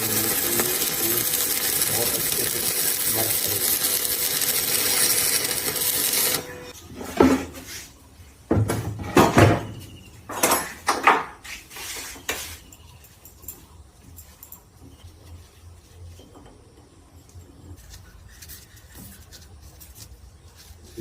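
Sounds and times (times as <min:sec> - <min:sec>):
loud steady noise: 0:00.0 - 0:06.5
metal tools clinking and clanking: 0:10.3 - 0:11.0.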